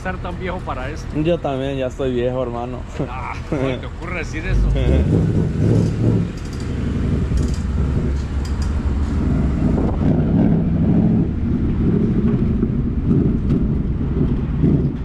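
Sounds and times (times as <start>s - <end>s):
car exhaust rumble: 0.0s - 15.0s.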